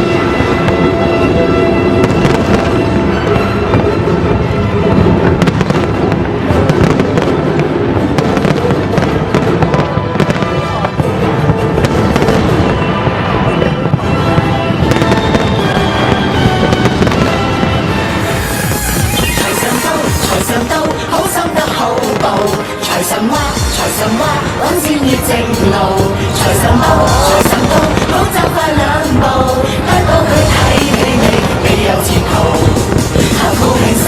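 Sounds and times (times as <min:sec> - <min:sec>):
fireworks bursting and crackling: 0:00.0 - 0:34.0
orchestral music over loudspeakers: 0:00.0 - 0:34.0.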